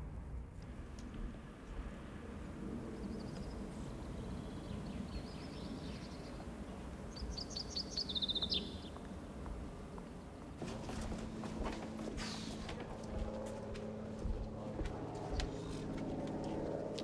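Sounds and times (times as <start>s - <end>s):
outdoor background noise: 0.0s - 17.0s
songbird singing: 3.0s - 12.8s.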